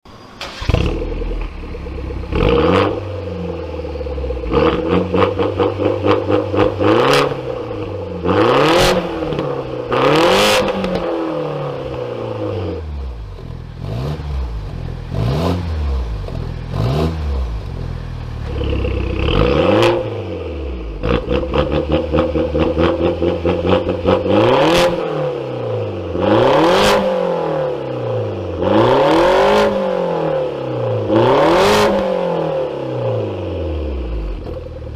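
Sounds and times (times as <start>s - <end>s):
car engine revving: 0.4s - 34.9s
exhaust crackles and pops: 8.8s - 11.2s.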